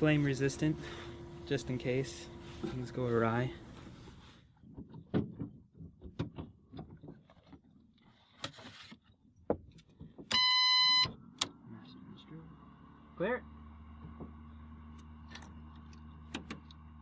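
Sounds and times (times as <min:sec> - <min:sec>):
electronic beep: 0:10.3 - 0:11.1.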